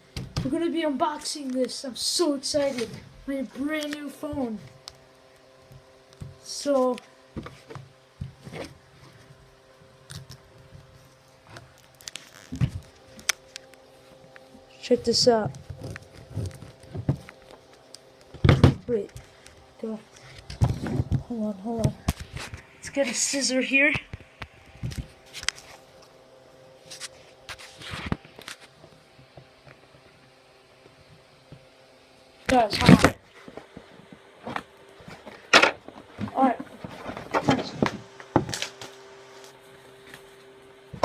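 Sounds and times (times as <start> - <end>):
plastic wrap crinkling: 10.0 - 13.9.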